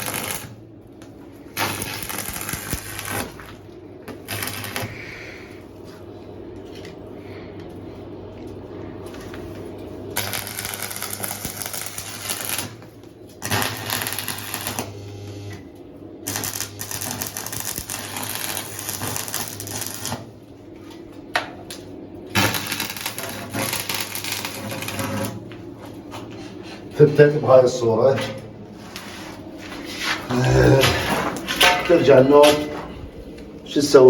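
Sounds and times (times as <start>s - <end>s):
arc welding crackle: 0.0s - 5.5s, 10.0s - 20.5s, 21.7s - 25.6s
steady low hum: 0.0s - 34.0s.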